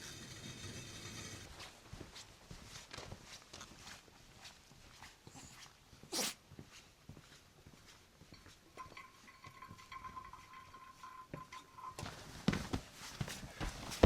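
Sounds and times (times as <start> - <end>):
hiss: 6.1 - 6.4
camp cookware clinking: 8.3 - 12.4.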